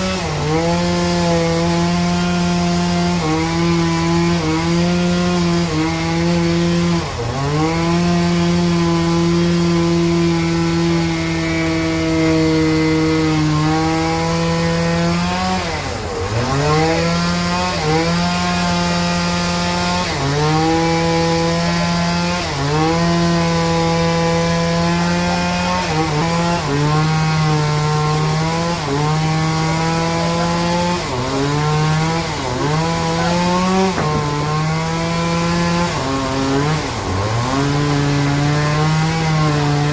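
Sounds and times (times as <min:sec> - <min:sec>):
band saw cutting log: 0:00.0 - 0:39.9.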